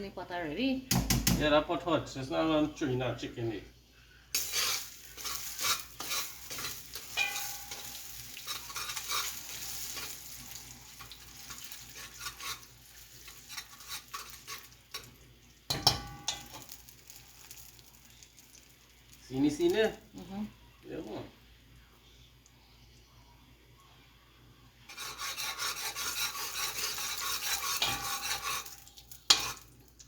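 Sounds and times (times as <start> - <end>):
chicken sizzling in oil: 4.3 - 21.3, 24.9 - 30.0
spoon scraping and knocking pot: 4.4 - 16.8, 24.9 - 29.7.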